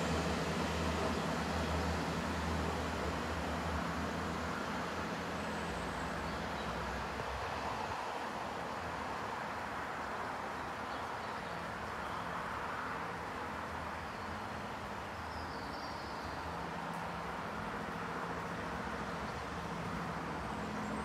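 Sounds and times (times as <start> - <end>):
train engine drone: 0.0 - 6.8.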